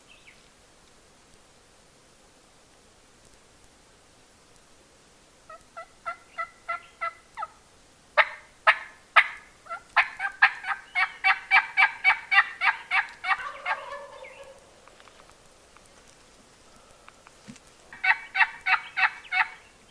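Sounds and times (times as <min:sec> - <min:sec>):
turkey yelping: 0:05.5 - 0:07.6, 0:08.2 - 0:14.6, 0:18.0 - 0:19.6.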